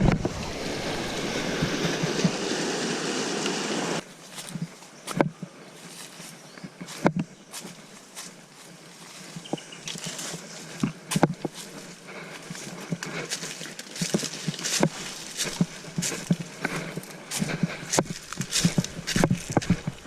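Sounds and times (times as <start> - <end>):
footsteps on stones: 4.1 - 20.0.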